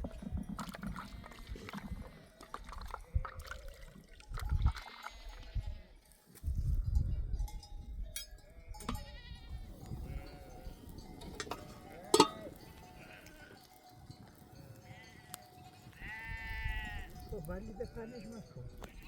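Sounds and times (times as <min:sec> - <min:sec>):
sheep bells clinking: 0:00.0 - 0:19.0
sheep bleating: 0:08.8 - 0:10.8, 0:11.6 - 0:13.7, 0:14.8 - 0:17.3.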